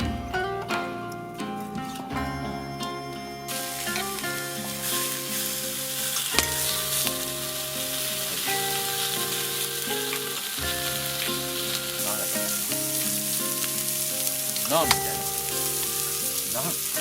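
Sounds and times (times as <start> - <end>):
melodic background music: 0.0 - 17.0
food sizzling in a pan: 3.4 - 17.0.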